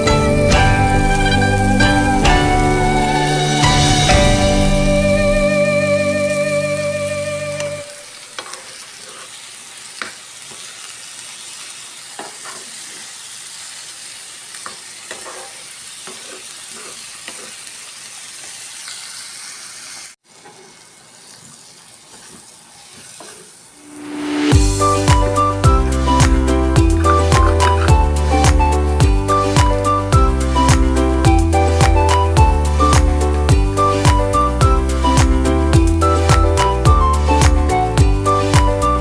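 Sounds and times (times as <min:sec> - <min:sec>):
background music: 0:00.0 - 0:07.9, 0:23.9 - 0:39.0
food sizzling in a frying pan: 0:06.4 - 0:28.4.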